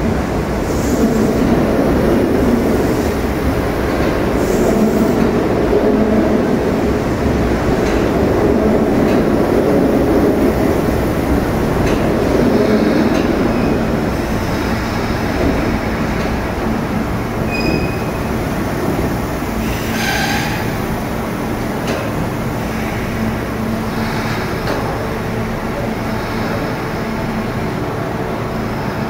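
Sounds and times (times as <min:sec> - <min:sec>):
train wheels rumbling on rails: 0:00.0 - 0:29.0
high wheel squeals: 0:17.5 - 0:18.2.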